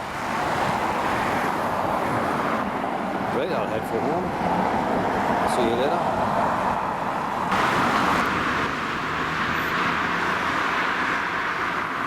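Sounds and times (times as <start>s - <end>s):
car traffic: 0.0s - 12.0s
road and wind noise: 0.0s - 12.0s.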